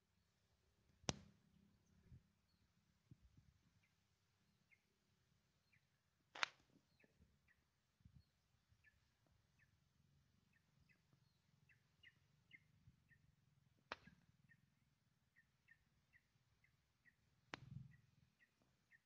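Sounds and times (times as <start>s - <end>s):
sharp clicks: 6.3s - 6.6s
small bird chirping: 6.8s - 9.8s, 10.4s - 13.4s, 14.0s - 19.0s.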